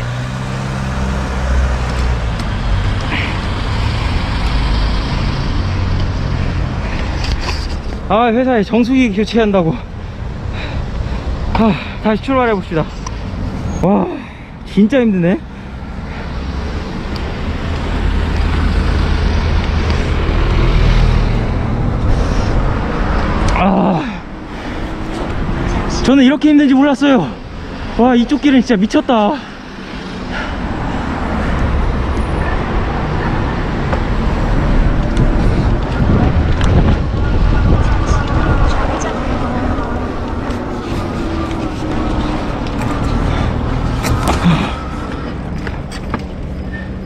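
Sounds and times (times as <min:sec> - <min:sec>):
engine hum: 0:00.0 - 0:08.1, 0:15.4 - 0:47.0
road traffic rumble: 0:00.0 - 0:47.0
wind on microphone: 0:34.2 - 0:43.0.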